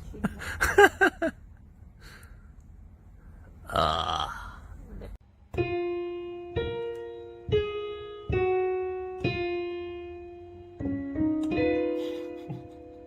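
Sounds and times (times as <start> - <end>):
piano notes: 5.5 - 13.0.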